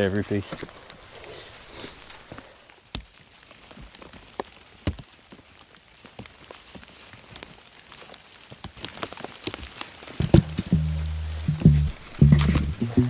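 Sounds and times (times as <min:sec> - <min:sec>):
rain falling: 0:00.0 - 0:13.0
sharp knocks: 0:10.2 - 0:13.0.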